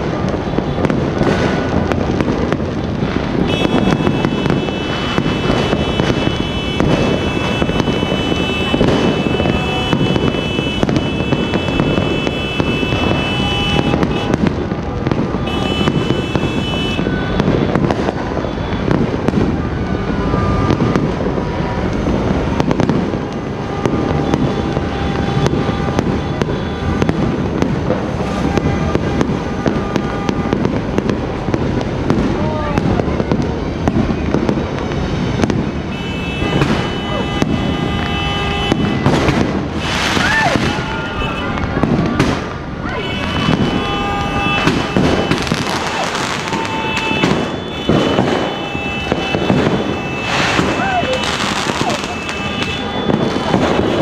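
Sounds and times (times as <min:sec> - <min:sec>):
fireworks crackling and banging: 0:00.0 - 0:54.0.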